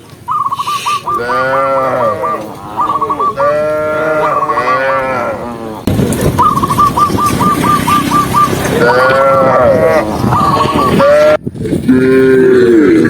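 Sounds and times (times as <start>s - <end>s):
cow mooing: 1.1s - 5.9s, 8.7s - 13.0s
fast high chirping: 6.4s - 8.7s.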